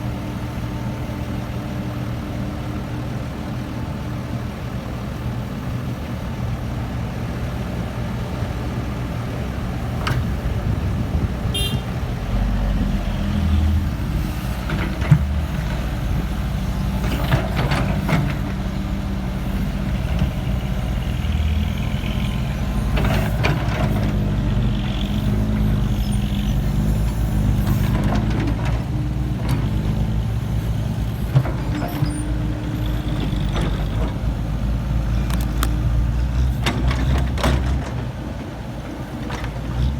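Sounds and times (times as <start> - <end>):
excavator diesel engine running: 0.0 - 39.9
machine knocks and clatters: 36.4 - 38.1.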